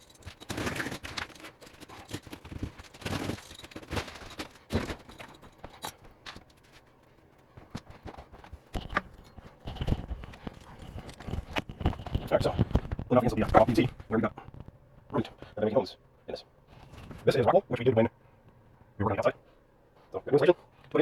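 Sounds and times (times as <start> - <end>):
drywall breaking and scraping: 0.0 - 6.9.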